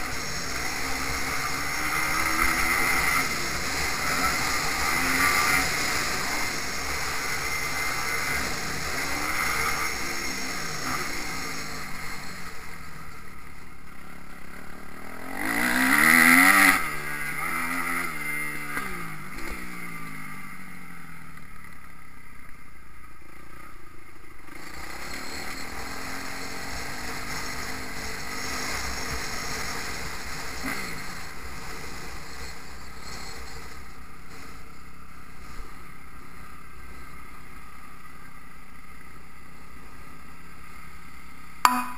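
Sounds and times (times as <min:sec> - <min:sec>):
motorbike passing by: 0:00.0 - 0:13.2, 0:14.6 - 0:21.3
motocross bike engines revving: 0:00.0 - 0:21.7, 0:24.4 - 0:38.1.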